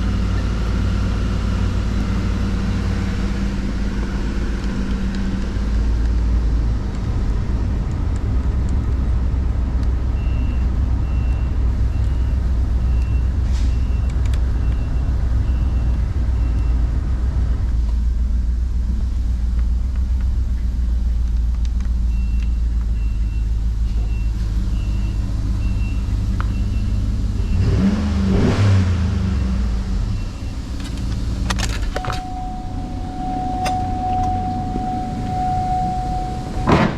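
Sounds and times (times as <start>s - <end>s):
car engine idling: 0.0s - 13.2s, 14.7s - 36.9s
high warning chime beeps: 32.0s - 36.8s
steady tone: 32.0s - 36.9s.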